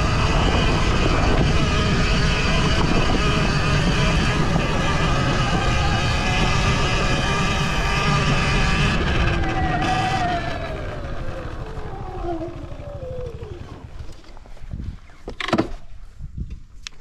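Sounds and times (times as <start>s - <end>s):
electric motor whining: 0.0s - 14.2s
tyres rumbling: 0.0s - 14.4s.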